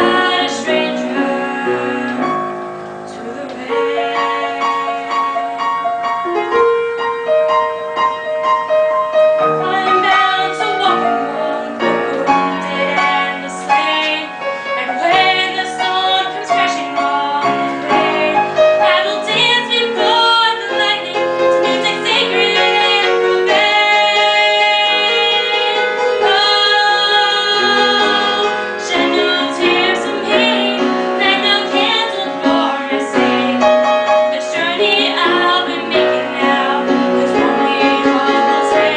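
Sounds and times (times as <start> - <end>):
woman singing a ballad: 0.0 - 2.5, 3.1 - 5.3, 9.6 - 38.9
piano accompaniment: 0.0 - 38.9.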